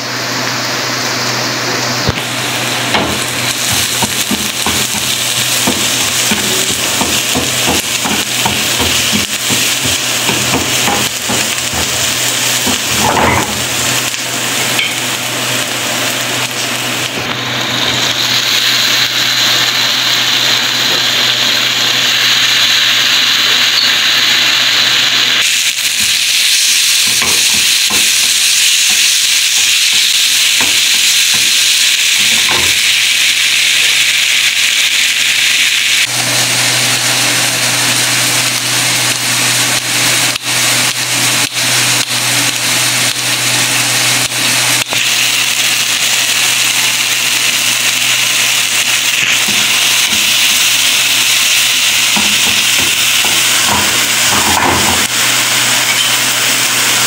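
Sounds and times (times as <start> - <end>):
food sizzling in hot oil: 0.0 - 57.0.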